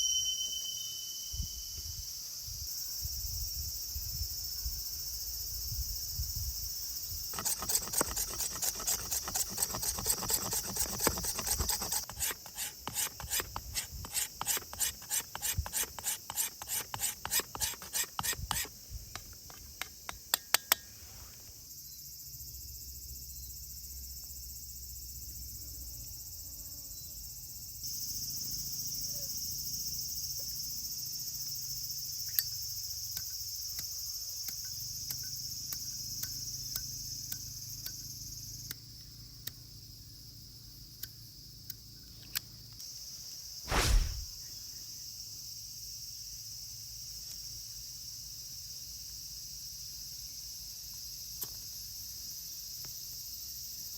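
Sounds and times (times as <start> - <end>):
insects chirping: 0.0 - 53.9.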